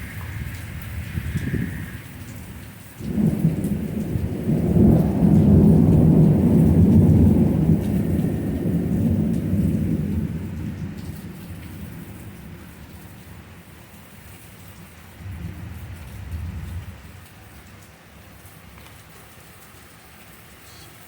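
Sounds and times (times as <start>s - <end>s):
thunder rumbling: 0.0s - 13.5s, 15.1s - 17.2s
steady rain: 0.0s - 21.0s.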